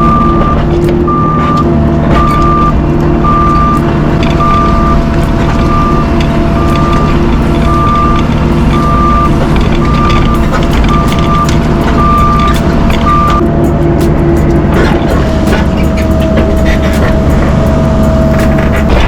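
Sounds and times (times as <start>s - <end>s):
backup alarm beeping: 0.0s - 13.4s
diesel engine running: 0.0s - 19.0s.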